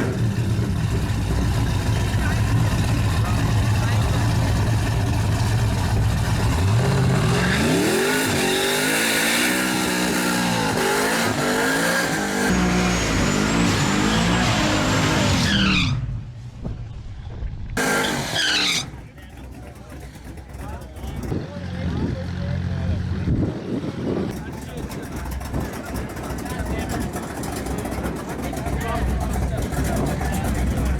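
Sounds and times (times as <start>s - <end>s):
drag racing engines accelerating: 0.0s - 16.3s, 17.7s - 30.9s.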